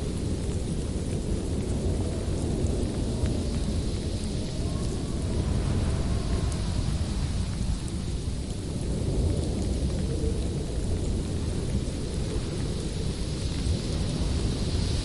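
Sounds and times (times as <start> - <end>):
howling wind: 0.0 - 15.0.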